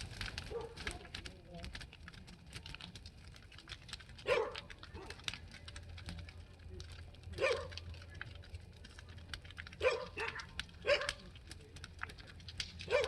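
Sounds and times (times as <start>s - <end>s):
bonfire crackling: 0.0s - 13.0s
dog barking: 0.5s - 0.8s, 4.2s - 5.2s, 7.4s - 7.8s, 9.8s - 11.2s.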